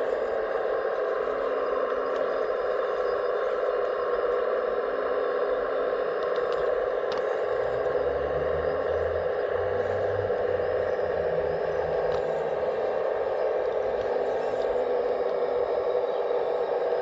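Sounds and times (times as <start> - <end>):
low hum: 0.0 - 17.0
faint clicks: 6.2 - 7.4.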